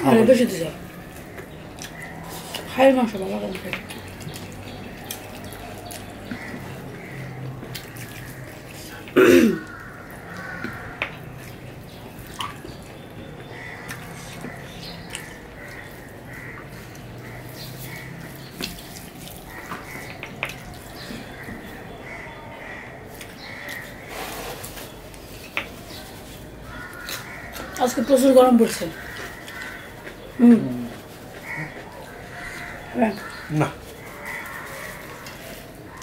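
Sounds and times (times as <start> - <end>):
wet chewing and lip-smacking: 1.7 - 2.7, 16.6 - 21.0.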